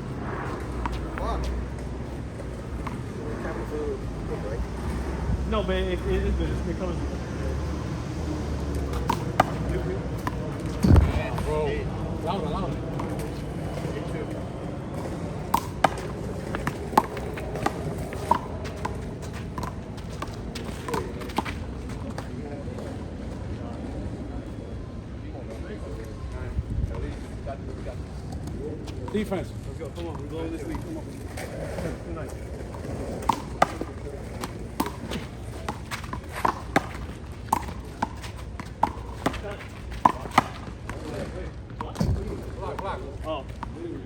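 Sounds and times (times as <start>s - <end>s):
steady background noise: 0.0s - 44.0s
handball smacks and bounces: 8.8s - 11.5s, 15.5s - 21.6s, 33.2s - 33.9s, 34.5s - 41.0s.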